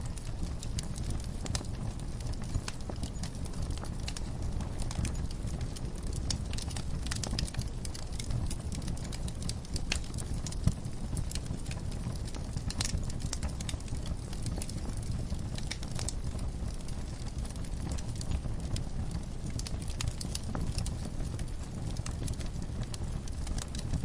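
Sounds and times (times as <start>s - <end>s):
low rumble of flames: 0.0s - 24.0s
wood fire crackling: 0.0s - 24.0s.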